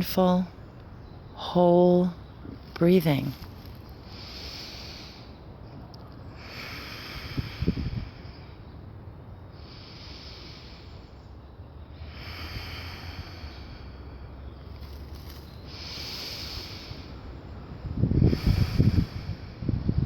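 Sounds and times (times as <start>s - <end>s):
person breathing slowly: 4.0s - 5.5s, 6.3s - 8.7s, 9.5s - 20.0s.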